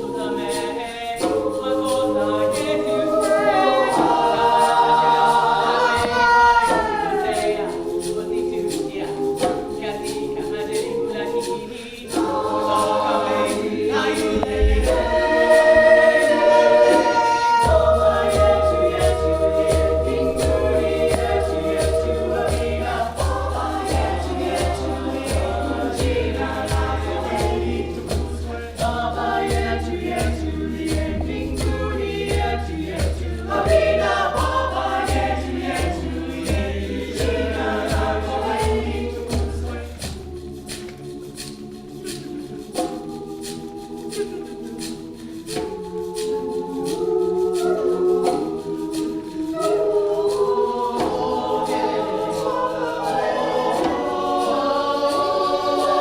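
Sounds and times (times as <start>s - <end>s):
choir singing in harmony: 0.0s - 56.0s
steady low beat: 14.1s - 40.9s.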